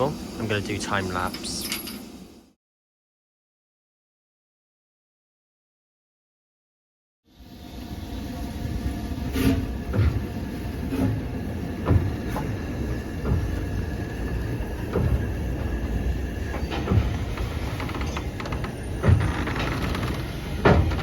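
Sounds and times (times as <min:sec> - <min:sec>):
railway rumble: 0:07.4 - 0:21.0.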